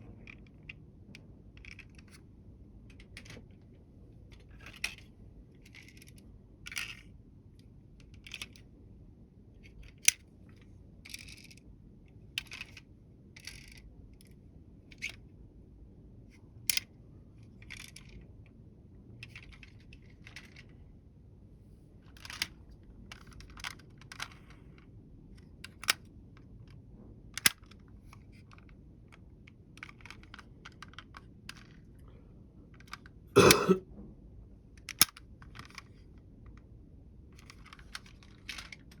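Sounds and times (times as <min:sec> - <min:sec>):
toy vehicles clicking and rattling: 0:01.6 - 0:02.2, 0:04.3 - 0:07.1, 0:08.0 - 0:08.6, 0:09.7 - 0:11.6, 0:12.4 - 0:12.8, 0:13.4 - 0:13.9, 0:16.7 - 0:18.2, 0:19.2 - 0:20.7, 0:22.1 - 0:24.6, 0:29.8 - 0:32.0, 0:34.8 - 0:36.0, 0:37.4 - 0:39.0.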